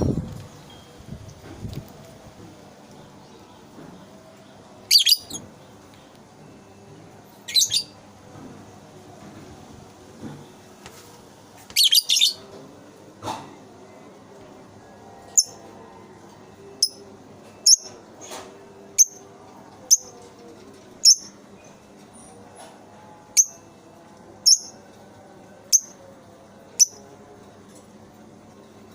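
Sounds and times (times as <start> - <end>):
bird chirping: 4.9 - 5.4.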